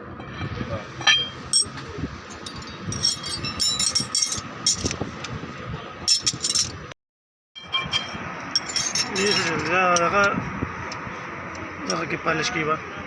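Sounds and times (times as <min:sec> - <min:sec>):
light metallic clinks: 0:02.3 - 0:05.0.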